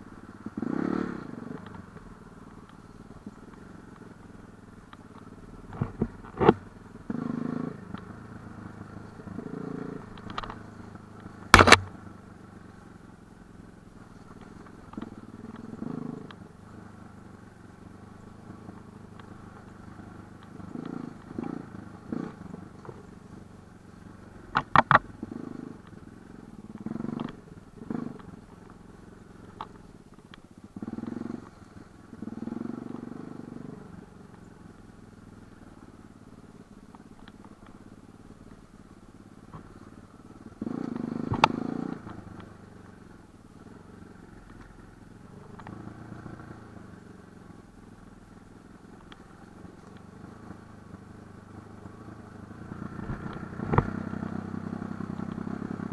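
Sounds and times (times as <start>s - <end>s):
motorcycle engine revving: 0.0s - 55.9s
rattle of clicks: 10.1s - 10.6s
sharp knock: 11.6s - 11.9s.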